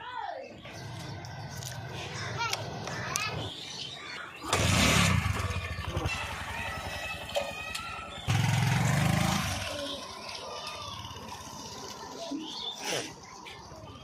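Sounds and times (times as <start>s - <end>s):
diesel engine chugging and revving: 4.4s - 10.2s.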